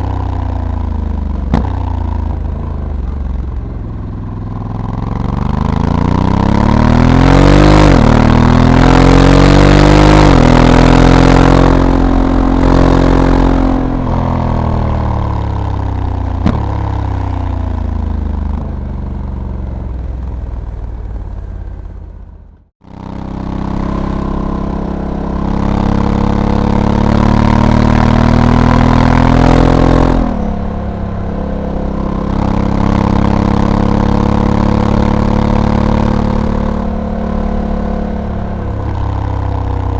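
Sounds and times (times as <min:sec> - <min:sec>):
motorcycle engine pulling hard: 0:22.8 - 0:39.9.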